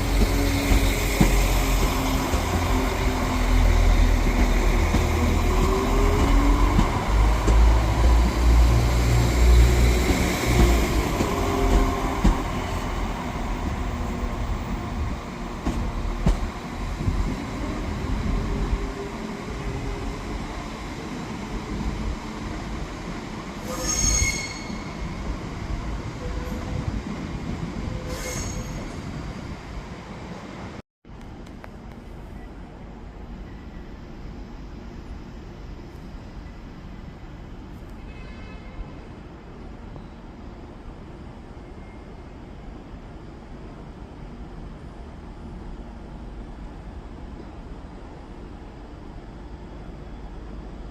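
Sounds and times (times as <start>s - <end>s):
train rumbling past: 0.0s - 30.8s
high-pitched wheel squeal: 23.6s - 25.0s, 28.0s - 29.0s.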